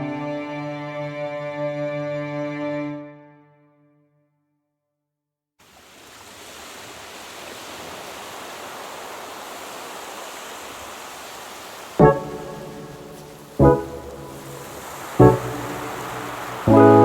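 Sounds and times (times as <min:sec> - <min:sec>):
running water rushing: 0:05.6 - 0:17.0.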